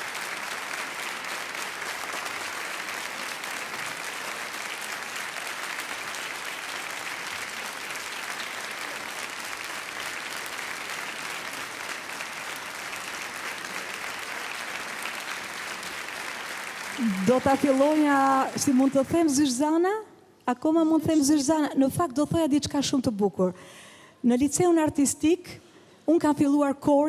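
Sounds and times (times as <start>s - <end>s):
audience applauding: 0.0s - 19.6s.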